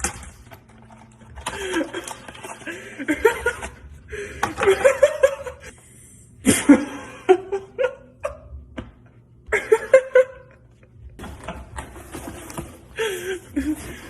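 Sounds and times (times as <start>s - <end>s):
person laughing: 1.5s - 5.7s, 6.4s - 8.6s, 9.5s - 11.0s.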